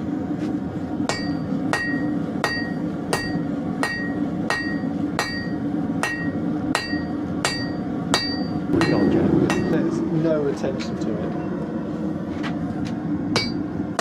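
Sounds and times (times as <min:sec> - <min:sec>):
hammer striking metal: 0:01.1 - 0:09.9, 0:13.4 - 0:13.7
low rumble: 0:08.6 - 0:13.2.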